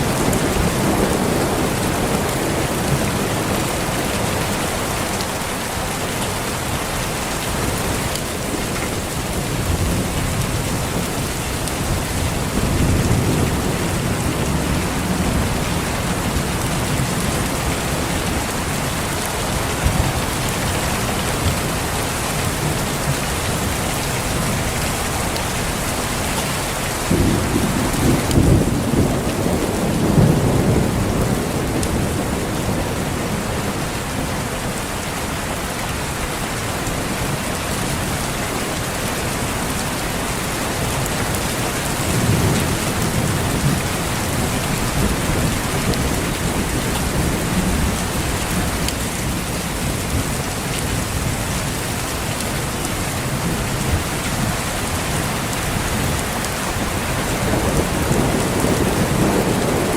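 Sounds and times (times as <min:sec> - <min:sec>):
steady rain: 0:00.0 - 0:59.9
distant thunder rumbling: 0:27.0 - 0:33.8, 0:56.7 - 0:59.9.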